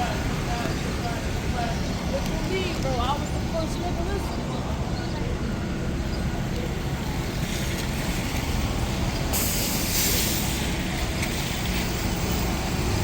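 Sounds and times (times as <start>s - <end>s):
street traffic rumbling: 0.0s - 13.0s
loud hiss: 9.2s - 10.9s.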